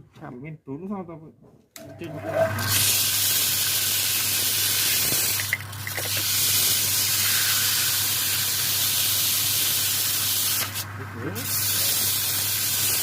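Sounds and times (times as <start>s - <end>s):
spraying hiss: 11.4s - 13.0s.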